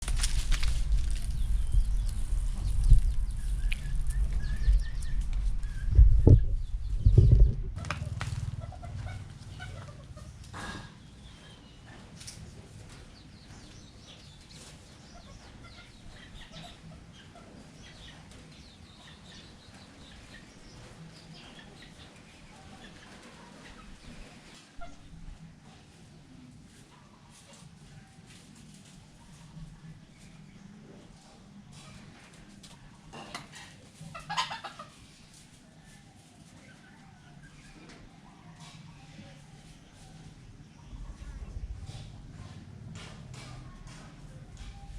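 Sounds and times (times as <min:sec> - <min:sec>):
sharp clicks or rustles: 0:00.0 - 0:04.3
low rumble: 0:00.0 - 0:10.5, 0:40.9 - 0:43.2
junglefowl clucking: 0:07.8 - 0:10.7, 0:33.4 - 0:35.2
faint low hum: 0:35.2 - 0:44.9.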